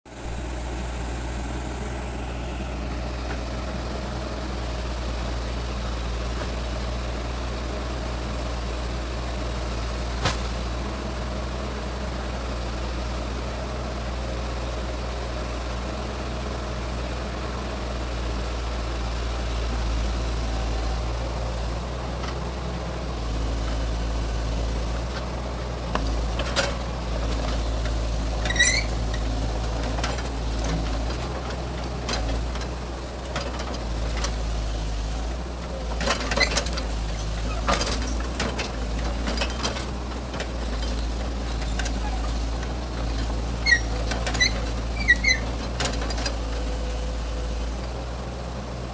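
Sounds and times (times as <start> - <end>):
diesel engine running: 0.1 - 48.9
short squeak: 28.3 - 30.8, 36.1 - 38.4, 40.7 - 42.5, 43.2 - 46.5.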